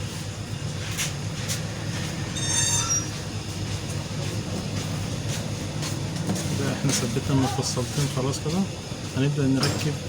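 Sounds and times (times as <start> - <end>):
steady low hum: 0.0 - 10.0
high-pitched metal squeak: 2.4 - 3.2.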